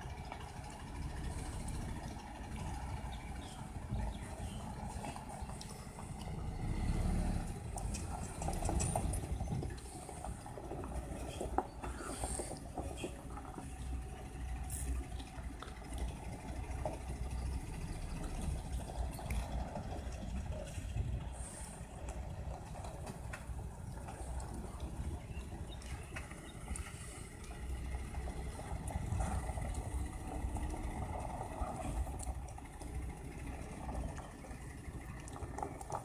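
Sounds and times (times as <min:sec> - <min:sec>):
truck engine rumbling: 0:00.0 - 0:36.0.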